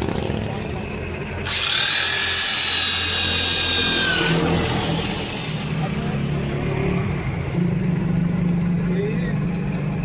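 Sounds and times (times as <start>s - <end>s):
power tool high whine: 1.4s - 6.5s.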